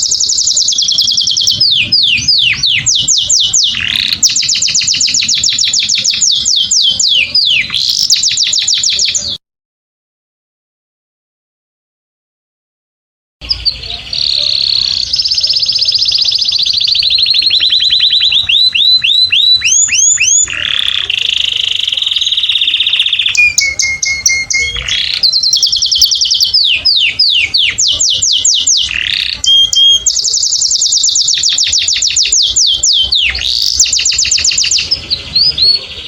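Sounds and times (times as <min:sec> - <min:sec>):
canary singing trills: 0:00.0 - 0:09.4, 0:13.4 - 0:36.0
low held whistle: 0:22.8 - 0:35.8.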